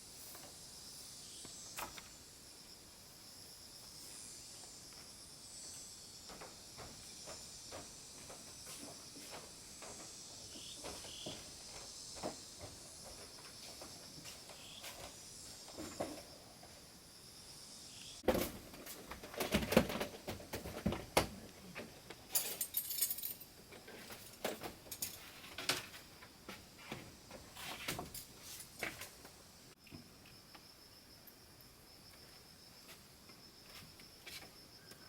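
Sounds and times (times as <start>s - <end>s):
steady high hiss: 0.0s - 19.1s, 21.2s - 35.0s
objects knocking and rattling: 18.3s - 26.1s.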